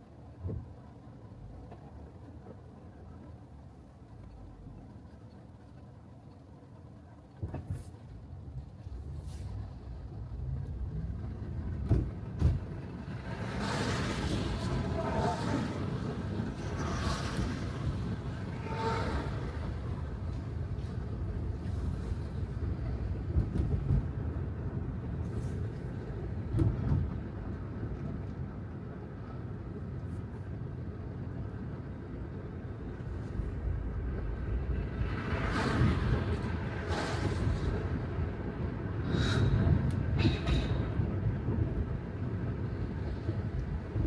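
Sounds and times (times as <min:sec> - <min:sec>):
tyre noise on wet road: 0:08.9 - 0:27.2, 0:32.8 - 0:40.1.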